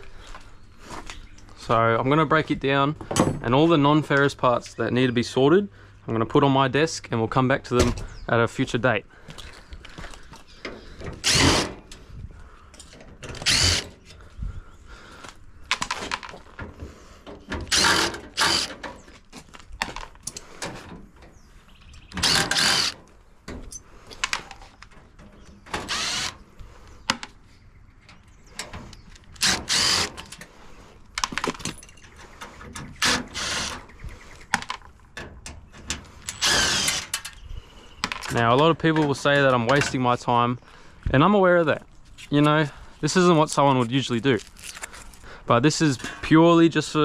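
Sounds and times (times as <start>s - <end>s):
power drill bursts: 11.1s - 11.9s, 13.3s - 14.0s, 17.6s - 18.8s, 22.1s - 23.0s, 25.7s - 26.4s, 29.4s - 30.3s, 33.0s - 33.8s, 36.3s - 37.2s.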